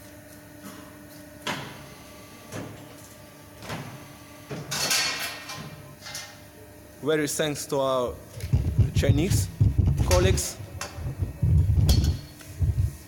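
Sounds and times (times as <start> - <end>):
machine humming: 5.8 - 13.0.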